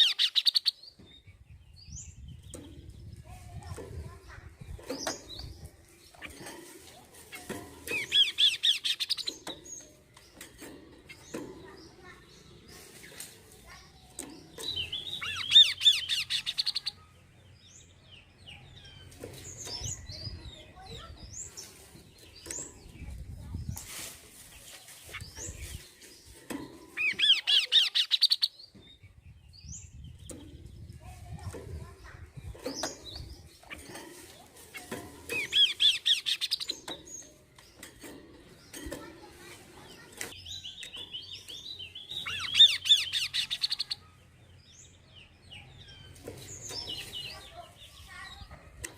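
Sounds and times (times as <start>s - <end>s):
bird calling: 0.0s - 0.8s
bird chirping: 0.0s - 48.9s.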